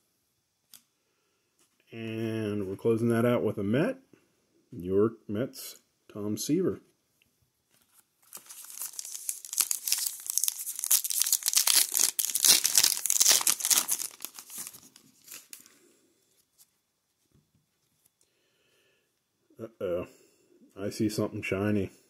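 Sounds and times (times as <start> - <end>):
foil wrapper tearing and crinkling: 7.8 - 15.7.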